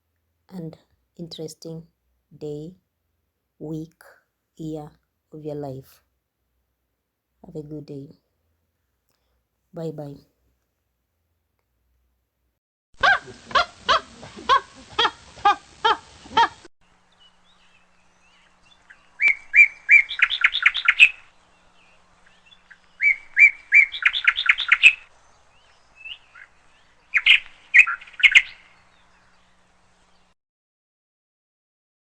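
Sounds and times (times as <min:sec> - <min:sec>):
songbird singing trills: 0:16.9 - 0:30.3.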